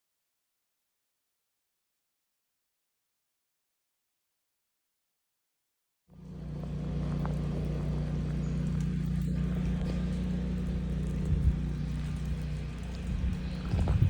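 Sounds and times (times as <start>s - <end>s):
generator engine humming: 6.1s - 14.0s.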